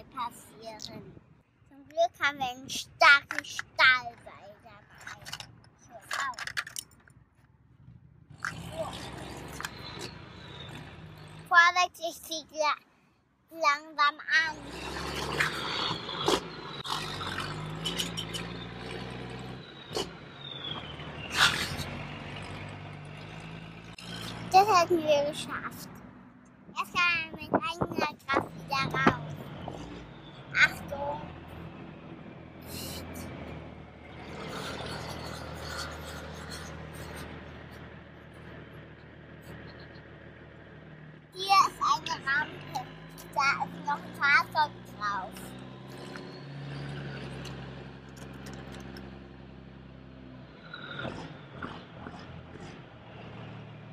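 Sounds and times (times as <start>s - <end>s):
toy trucks rolling and scraping: 2.7s - 7.2s, 8.3s - 10.8s, 14.6s - 19.5s, 34.2s - 38.5s, 46.8s - 49.2s
plastic toy vehicles knocking and scraping: 3.1s - 3.9s, 4.8s - 7.5s, 27.4s - 29.8s.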